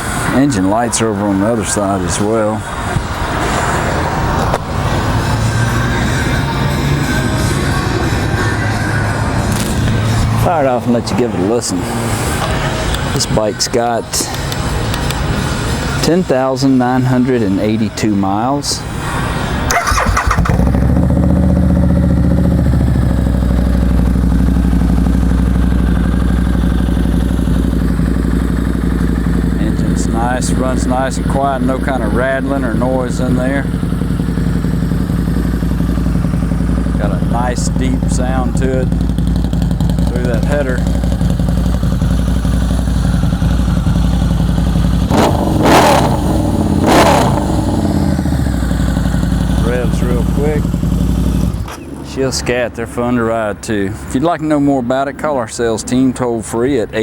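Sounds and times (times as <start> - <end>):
motorcycle engine idling: 0.0 - 11.3, 19.7 - 52.0
motorcycle throttle blips: 12.1 - 16.0, 19.6 - 52.1
motorcycle engine starter cranking: 19.7 - 21.2.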